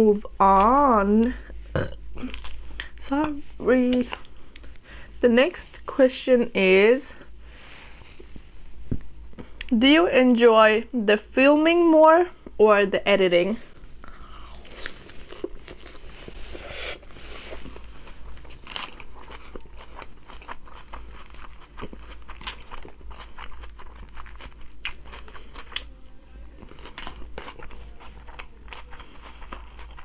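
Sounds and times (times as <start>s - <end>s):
person chewing crunchy food: 1.8s - 3.0s, 13.8s - 30.0s.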